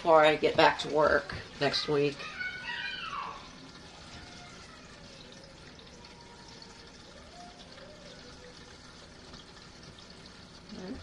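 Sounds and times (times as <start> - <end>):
faint running water: 0.0 - 11.0.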